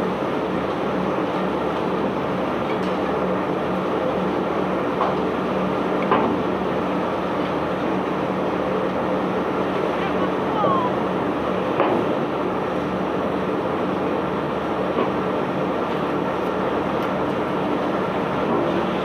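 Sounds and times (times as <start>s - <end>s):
machinery rumbling: 9.6s - 11.8s.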